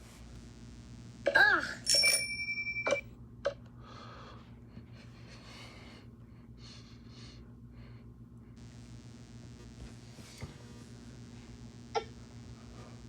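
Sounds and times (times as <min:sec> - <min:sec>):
bell ringing with trill: 0:01.8 - 0:03.0.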